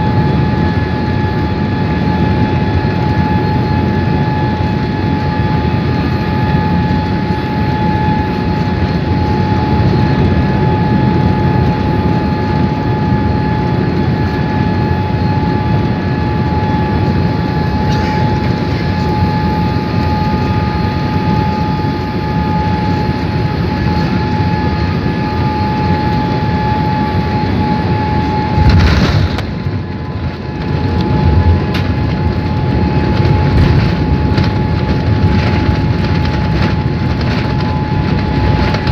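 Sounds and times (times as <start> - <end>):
airplane cabin engine noise: 0.0 - 38.9
constant whine: 0.0 - 38.9
landing roll rumble: 28.6 - 30.0.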